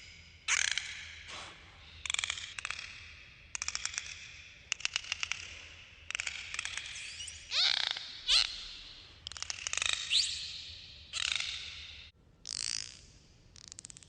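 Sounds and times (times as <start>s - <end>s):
dolphin clicks: 0.5s - 14.0s
dolphin whistle: 6.8s - 9.0s, 9.8s - 12.0s
dolphin squeal: 6.9s - 9.0s.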